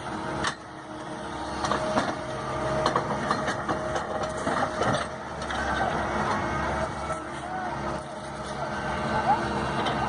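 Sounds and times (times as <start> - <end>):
heavy machine engine running: 0.0 - 10.0
metallic clanks and knocks: 1.6 - 6.4.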